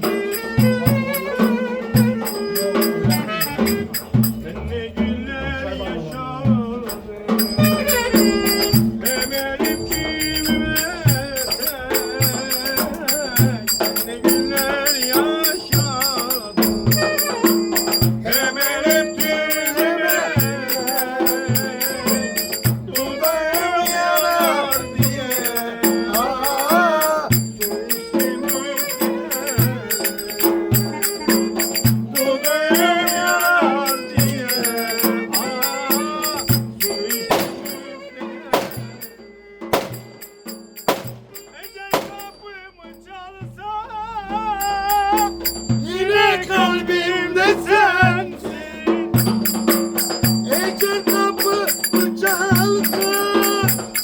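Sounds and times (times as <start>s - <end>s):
wavering ornamented melody: 0.0s - 4.5s, 7.3s - 43.1s, 44.6s - 46.0s
steady drum beat: 0.0s - 43.8s, 44.4s - 46.6s, 47.7s - 54.0s.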